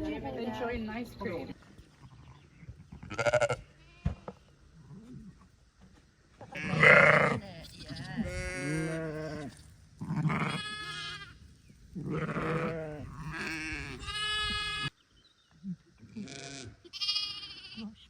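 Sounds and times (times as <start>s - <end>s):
lambs bleating: 2.9s - 4.2s, 6.6s - 11.4s, 12.0s - 14.9s, 16.2s - 17.8s.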